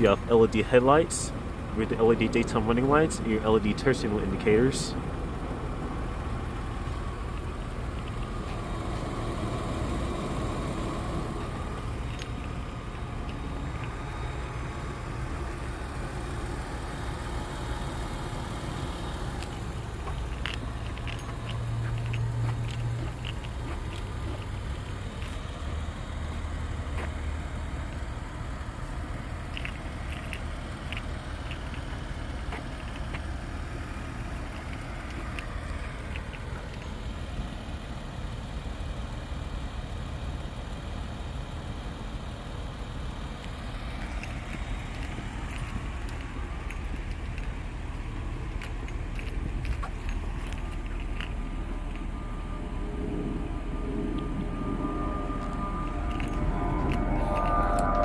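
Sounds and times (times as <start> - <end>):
car engine idling: 0.0 - 58.0
light ticks: 34.4 - 37.0.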